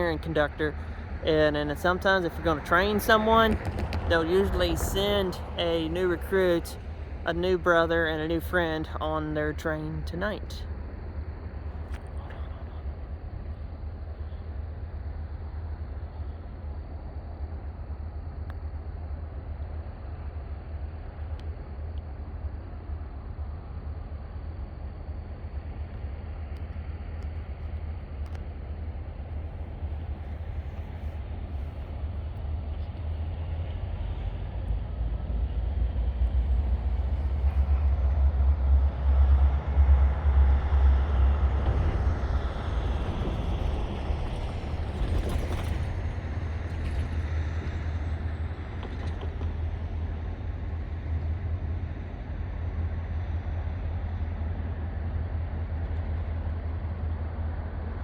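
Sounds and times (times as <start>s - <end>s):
diesel locomotive engine rumble: 0.0s - 58.0s.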